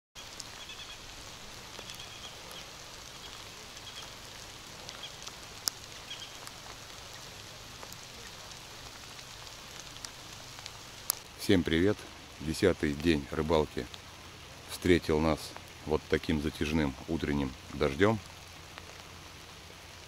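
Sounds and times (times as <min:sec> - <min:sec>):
raindrops ticking close by: 0:00.2 - 0:20.0
steady light rain: 0:00.2 - 0:20.0.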